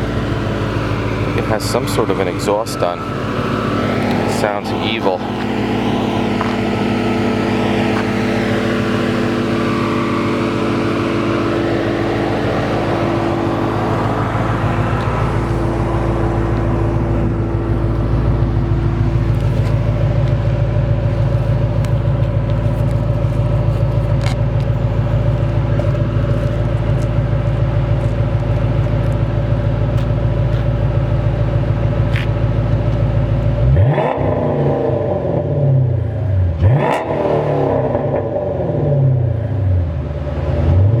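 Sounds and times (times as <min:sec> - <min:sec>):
car engine idling and revving: 0:00.0 - 0:41.0.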